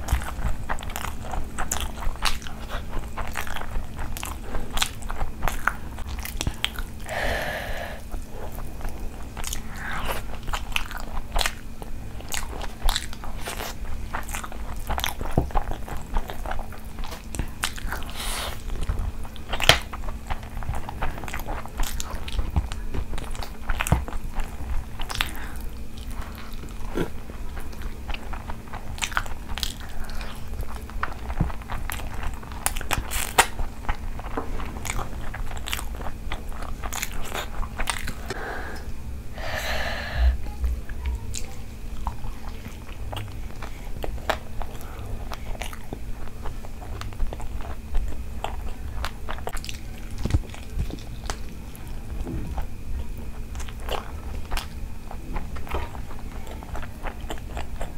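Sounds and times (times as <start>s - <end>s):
faint steady hum: 0.0s - 57.9s
person chewing and smacking: 0.0s - 57.9s.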